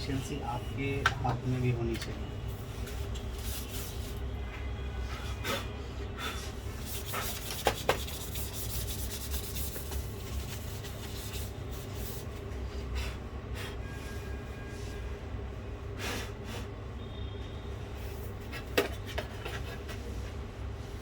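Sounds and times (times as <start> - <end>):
hands scraping laptop case: 7.0 - 11.2.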